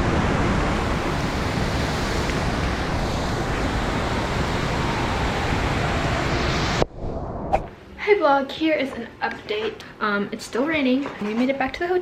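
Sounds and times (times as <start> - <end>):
heavy rain: 0.0 - 6.8
wind buffeting microphone: 0.0 - 7.7.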